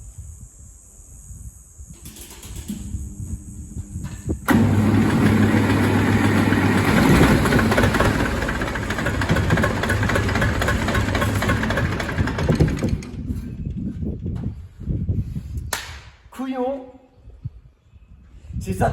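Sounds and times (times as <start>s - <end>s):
tractor diesel engine running: 2.0s - 14.2s.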